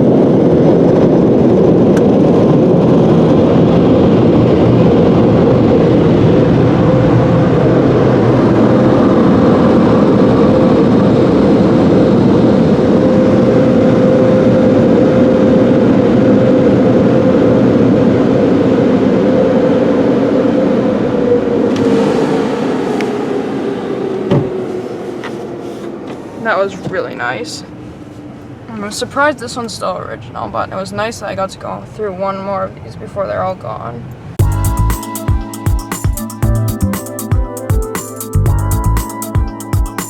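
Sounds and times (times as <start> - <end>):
car wash air dryer blowers: 20.5 - 28.6.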